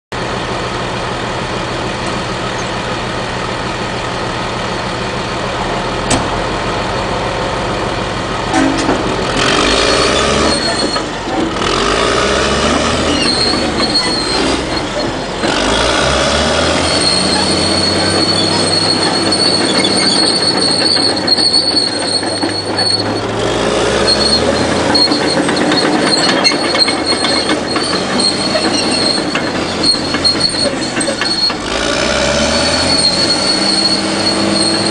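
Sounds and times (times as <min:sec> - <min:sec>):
diesel engine running: 0:00.1 - 0:34.9
steel tracks rattling: 0:08.4 - 0:34.9
high squeal from undercarriage: 0:09.6 - 0:34.9.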